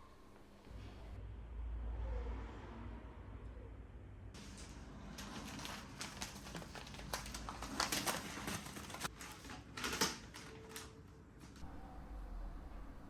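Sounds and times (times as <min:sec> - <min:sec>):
objects clattering: 0:04.4 - 0:11.6
objects clicking and rustling: 0:04.4 - 0:11.6.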